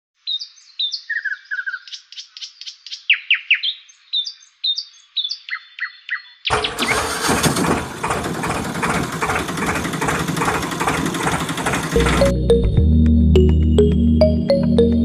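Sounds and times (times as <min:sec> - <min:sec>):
birds chirping and trilling: 0:00.2 - 0:06.9
loud rough noise: 0:06.5 - 0:12.4.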